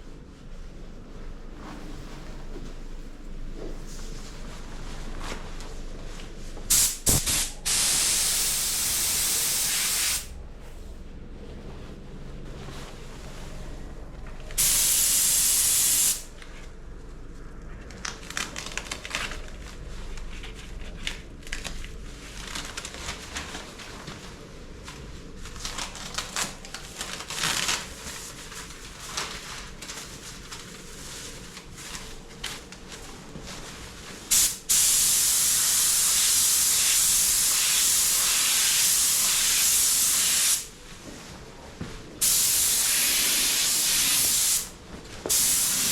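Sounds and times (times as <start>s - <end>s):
paint spray gun hissing: 6.7s - 10.3s, 14.6s - 16.3s, 34.3s - 40.7s, 42.2s - 44.7s, 45.3s - 45.9s.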